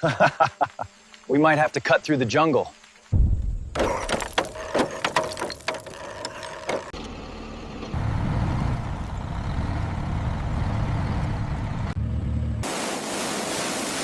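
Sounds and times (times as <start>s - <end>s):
vehicle engine rumble: 3.2s - 12.7s
metallic mechanism clicks and clanks: 3.8s - 7.0s.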